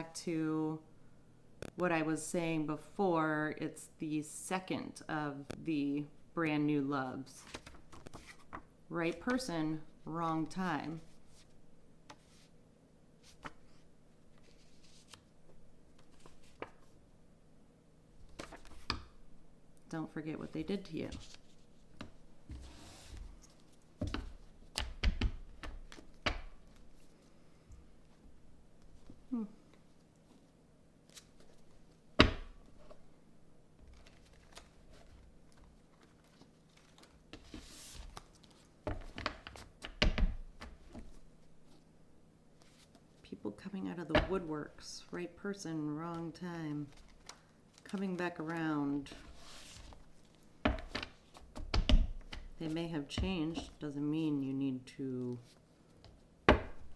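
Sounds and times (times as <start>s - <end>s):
cards rustling: 33.8s - 39.7s, 46.2s - 51.6s.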